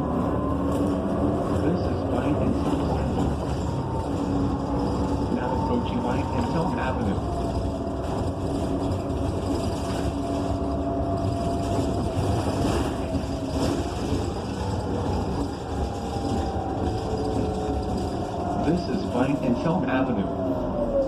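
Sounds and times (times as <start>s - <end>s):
bus engine low rumble: 0.0s - 21.0s.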